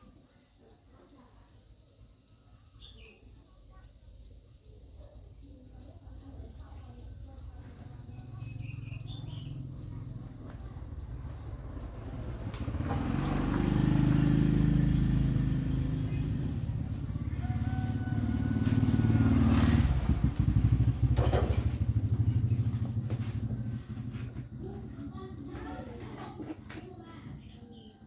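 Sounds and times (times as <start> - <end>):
small engine running: 7.3 - 26.6.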